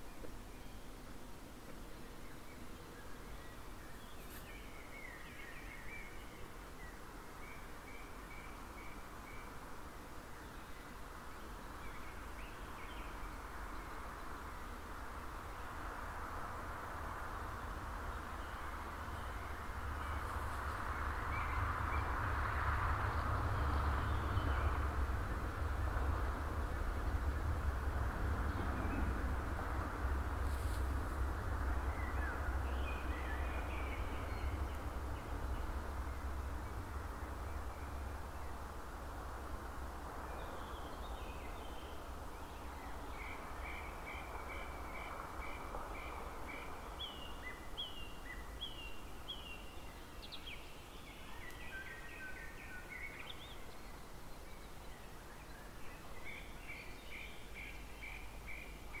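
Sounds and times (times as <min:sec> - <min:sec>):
steady low rumble: 0:16.0 - 0:47.1.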